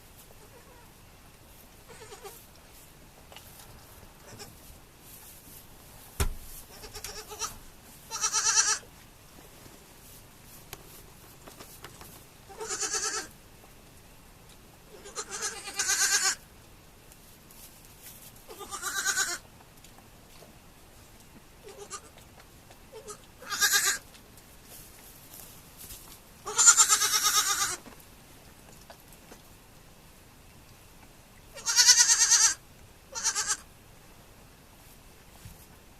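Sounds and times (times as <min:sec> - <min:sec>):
goat kids bleating: 0:00.3 - 0:00.9, 0:01.8 - 0:02.4, 0:04.2 - 0:04.6, 0:06.7 - 0:08.9, 0:12.5 - 0:13.4, 0:14.9 - 0:16.4, 0:18.5 - 0:19.5, 0:21.6 - 0:22.2, 0:22.9 - 0:24.0, 0:26.4 - 0:27.9, 0:31.5 - 0:33.7.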